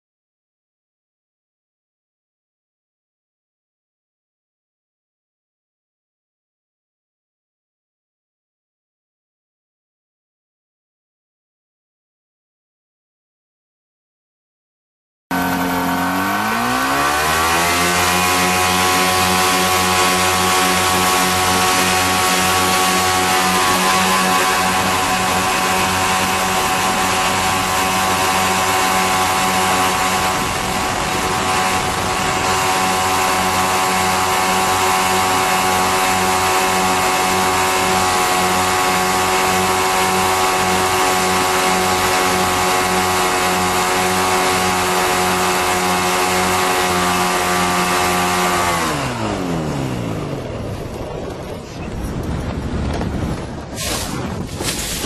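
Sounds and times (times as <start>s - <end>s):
propeller aircraft engine: 15.3s - 55.0s.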